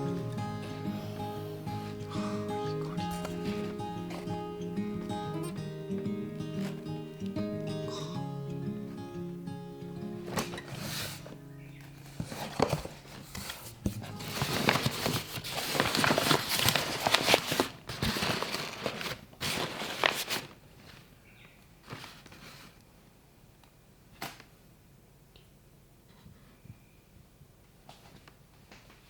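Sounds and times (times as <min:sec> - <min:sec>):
rustling and clicking of handling: 0:10.2 - 0:22.9.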